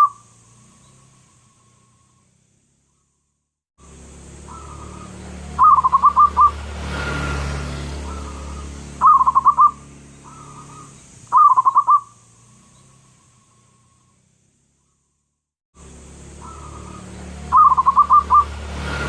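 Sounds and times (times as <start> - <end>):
rushing noise: 3.9 - 10.4, 15.9 - 19.0
dove cooing: 4.5 - 6.6, 8.0 - 12.2, 16.4 - 18.5.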